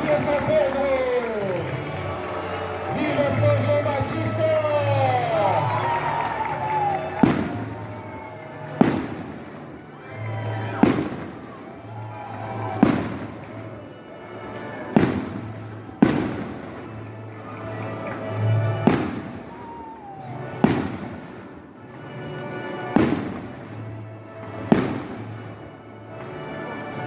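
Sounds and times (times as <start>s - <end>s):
fireworks bangs: 0.0s - 13.8s, 14.8s - 17.0s, 18.0s - 21.7s, 22.9s - 23.8s, 24.5s - 25.6s.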